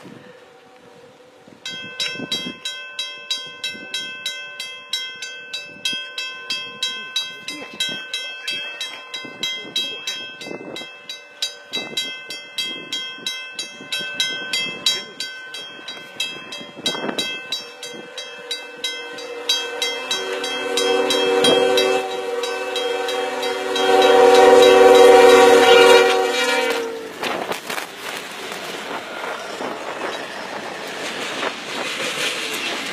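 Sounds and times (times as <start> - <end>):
rapid regular ringing: 1.7 - 25.9
train ploughing through snow: 5.2 - 32.9
train wheels clattering: 11.0 - 32.9
train air horn blast: 18.0 - 27.2.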